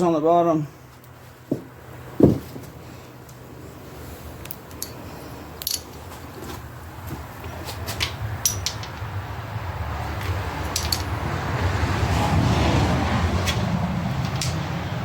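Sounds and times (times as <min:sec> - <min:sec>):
metallic clinks of steel parts: 0:04.4 - 0:06.4, 0:07.7 - 0:09.1, 0:10.2 - 0:11.2.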